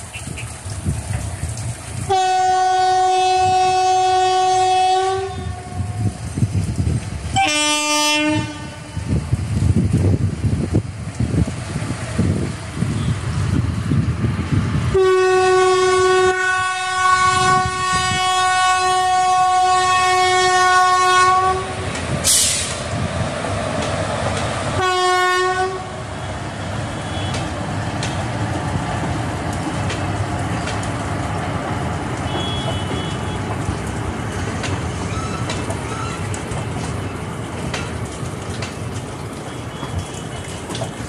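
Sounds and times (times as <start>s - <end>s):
train coaches rumbling past: 0.0s - 41.0s
locomotive horn blasts: 2.1s - 6.0s, 7.4s - 9.1s, 14.9s - 21.8s, 24.8s - 25.9s, 26.9s - 27.5s, 32.3s - 33.5s.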